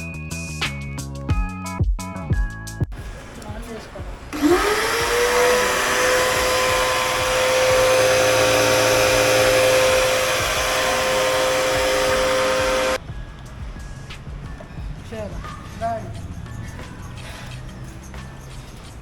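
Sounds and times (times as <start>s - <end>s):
pressure washer motor whining: 4.3s - 13.0s.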